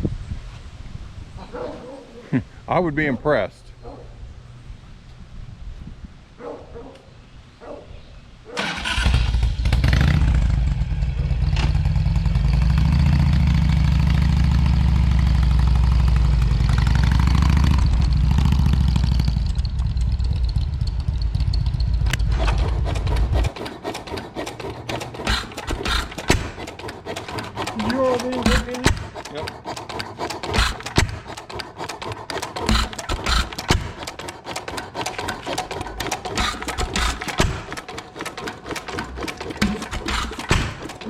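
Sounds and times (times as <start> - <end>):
engine running: 8.6 - 41.0
series of clicks: 21.5 - 41.0.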